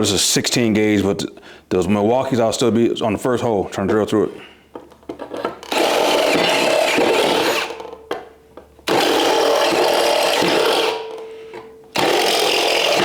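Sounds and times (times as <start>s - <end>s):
power drill boring through sheet steel: 5.7s - 7.8s, 8.9s - 11.1s, 12.0s - 13.0s.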